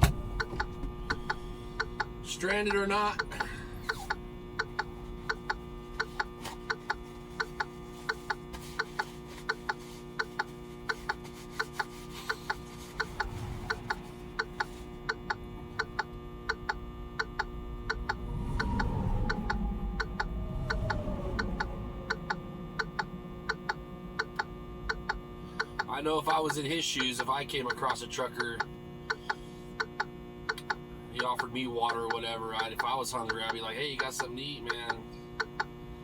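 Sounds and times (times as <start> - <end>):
whine falling in pitch: 0.0 - 7.6, 12.7 - 26.8
steady hum in truck cab: 0.0 - 36.0
sharp ticking clicks: 0.4 - 35.8.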